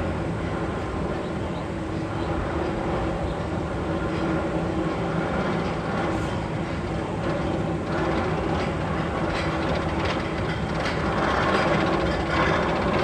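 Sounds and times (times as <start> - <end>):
mechanical drone with low hums: 0.0 - 13.0.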